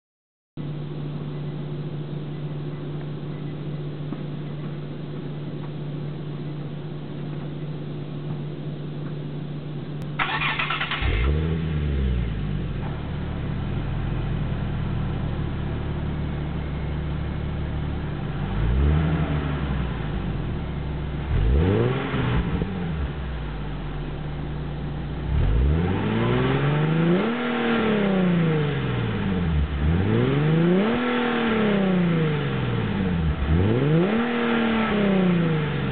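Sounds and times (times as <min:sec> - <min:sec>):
low hum: 0:00.6 - 0:27.2
car engine idling and revving: 0:00.8 - 0:35.9.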